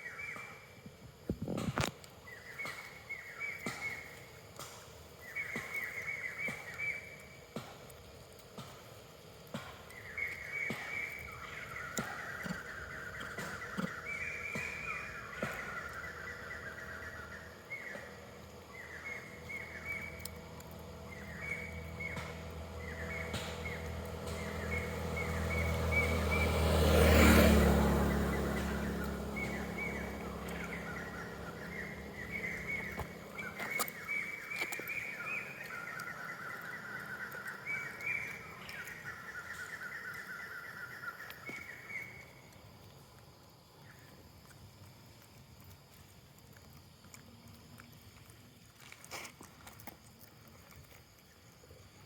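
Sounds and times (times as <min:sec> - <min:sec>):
birds chirping: 0:01.4 - 0:42.8
motor vehicle passing by: 0:09.5 - 0:42.2.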